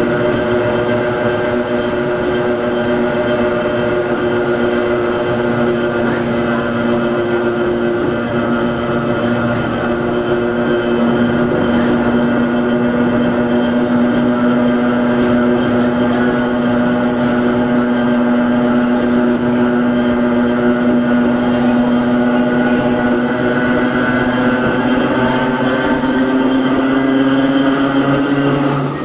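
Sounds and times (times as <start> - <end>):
electric railcar motor hum: 0.0 - 29.0
running gear rumble: 0.0 - 29.0.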